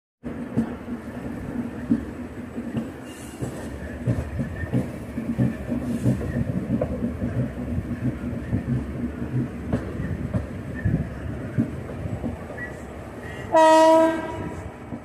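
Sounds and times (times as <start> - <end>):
train wheels rumbling on rails: 0.2 - 15.0
thumps over rail joints: 1.8 - 10.9.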